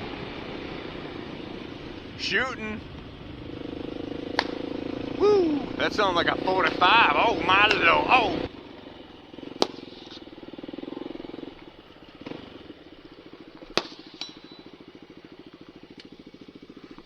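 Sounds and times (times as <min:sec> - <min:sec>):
dirt bike engine idling: 0:00.0 - 0:17.0
gunshots: 0:06.1 - 0:08.3.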